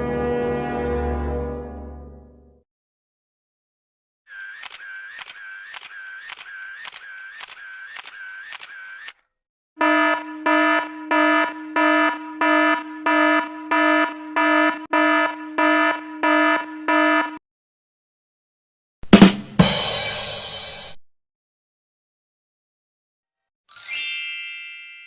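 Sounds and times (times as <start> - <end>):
buzzing alarm beep: 9.8 - 17.4.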